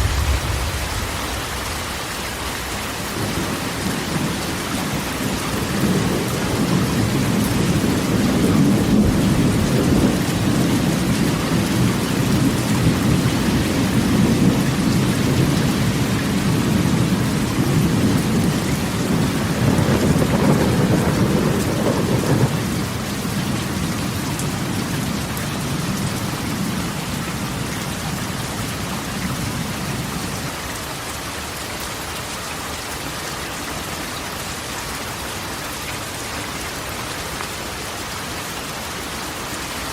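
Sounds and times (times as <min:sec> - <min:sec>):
rumble of thunder: 0:00.0 - 0:30.3
rain on a metal roof: 0:00.0 - 0:39.9.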